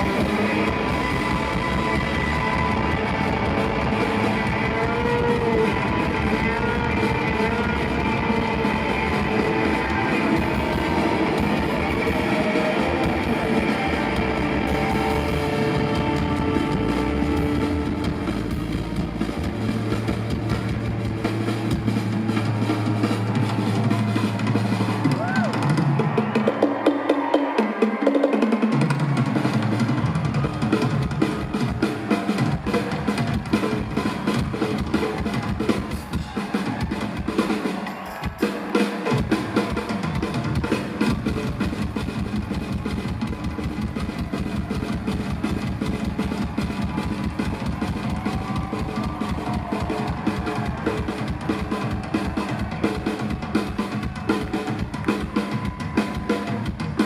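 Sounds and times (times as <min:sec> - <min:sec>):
bass drum beat: 0:00.0 - 0:26.2, 0:39.2 - 0:57.0
rock band playing: 0:00.0 - 0:57.0
snare drum rolls: 0:00.0 - 0:57.0.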